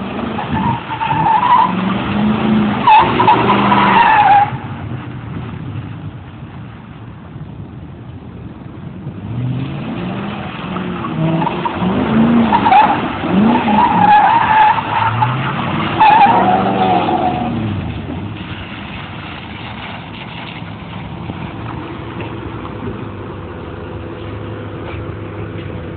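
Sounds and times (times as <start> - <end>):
tire squeal: 0.0 - 5.0, 10.2 - 22.6
car engine revving: 9.0 - 25.9.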